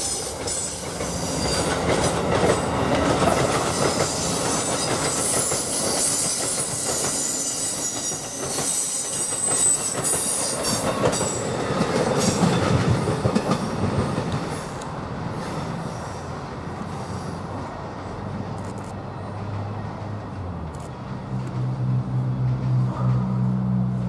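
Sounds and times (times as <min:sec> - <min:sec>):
high wheel squeal: 0:00.0 - 0:02.2, 0:03.7 - 0:11.4
train rumble: 0:00.0 - 0:24.0
wheels clicking over rail joints: 0:00.2 - 0:15.0.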